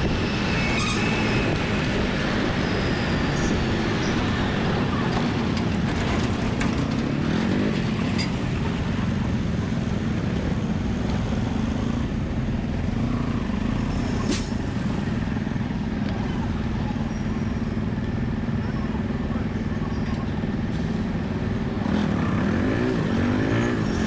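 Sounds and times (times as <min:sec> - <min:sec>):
low wind rumble: 0:00.0 - 0:18.0
road traffic: 0:00.0 - 0:24.0.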